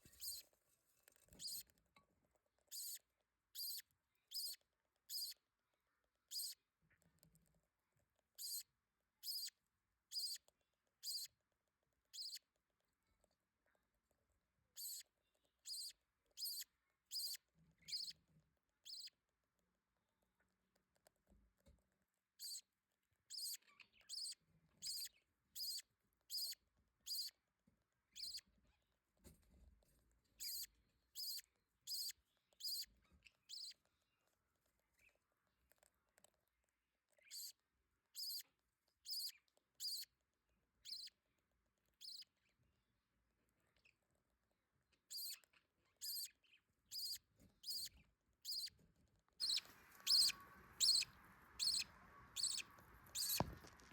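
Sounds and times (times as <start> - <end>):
budgerigar chicks cheeping: 2.7 - 3.0, 3.6 - 5.4, 6.3 - 6.6, 8.4 - 8.6, 9.2 - 9.5, 10.1 - 10.4, 11.0 - 11.3, 14.8 - 15.0, 15.6 - 18.2, 23.3 - 27.3, 28.2 - 28.4, 30.4 - 32.9, 38.2 - 38.4, 39.1 - 40.1, 45.1 - 45.4, 46.0 - 46.3, 46.9 - 48.7, 49.4 - 53.9.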